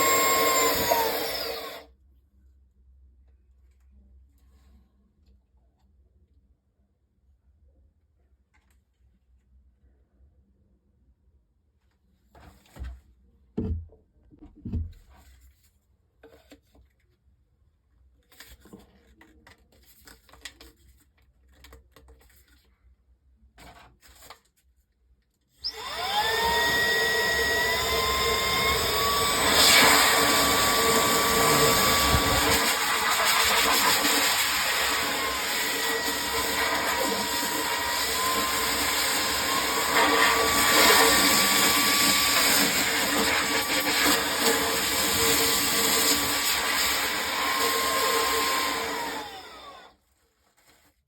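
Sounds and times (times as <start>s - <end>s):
air blower motor whine: 0.0s - 1.8s, 25.7s - 49.9s.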